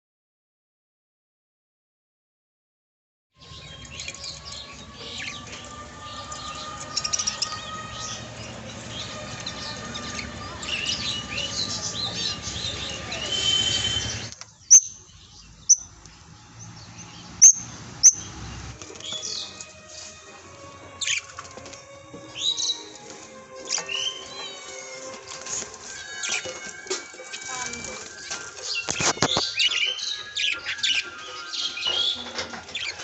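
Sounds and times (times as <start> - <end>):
budgerigars chirping and chattering: 3.5 - 20.2, 20.9 - 21.6, 22.3 - 23.0, 23.6 - 33.0
loud sharp chirps: 12.6 - 15.0.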